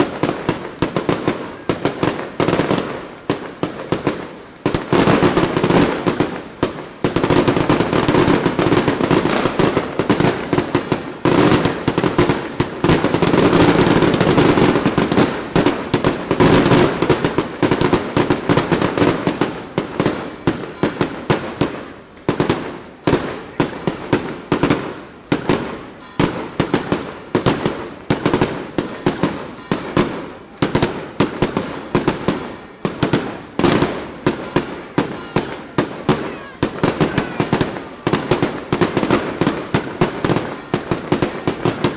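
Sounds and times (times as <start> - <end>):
fireworks banging: 0.0 - 41.9.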